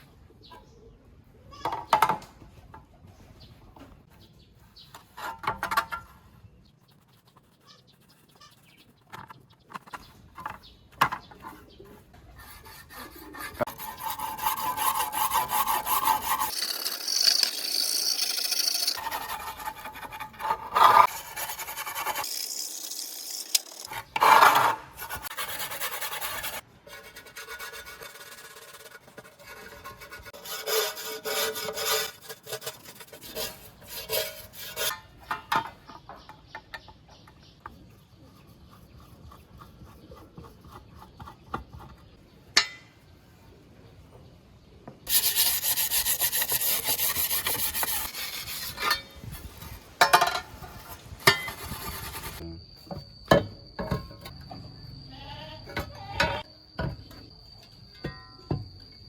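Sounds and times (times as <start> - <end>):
abrasive scraping on rusty metal: 4.2 - 36.6, 45.1 - 52.4.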